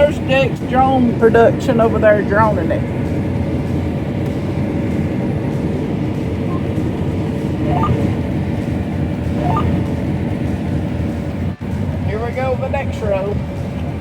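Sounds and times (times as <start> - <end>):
combine harvester drone: 0.0 - 14.0
faint steady hum: 2.8 - 12.1.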